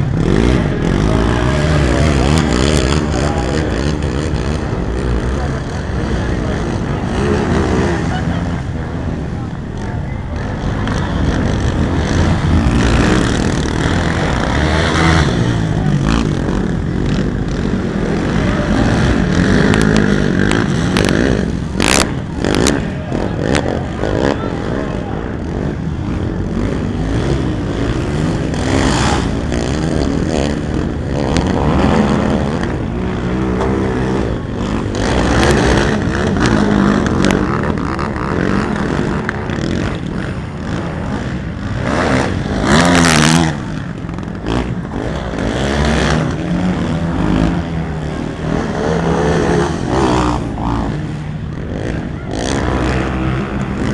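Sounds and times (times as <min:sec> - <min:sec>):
quad engines revving: 0:00.0 - 0:53.9.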